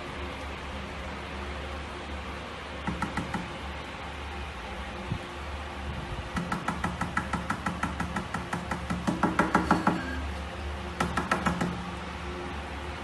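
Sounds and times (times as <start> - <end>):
low steady hum: 0.0 - 13.0
rapid light taps: 2.8 - 3.6.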